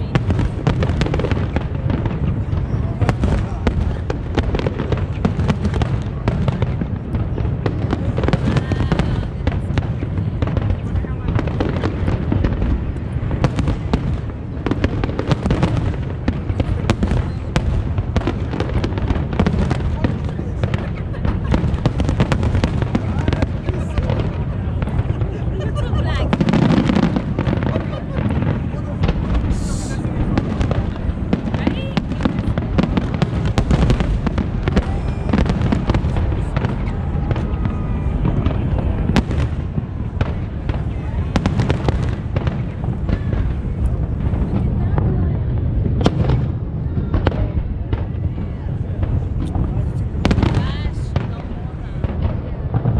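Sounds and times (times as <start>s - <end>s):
fireworks bursts rumbling: 0.0s - 52.9s
fireworks cracks and pops: 0.0s - 52.9s.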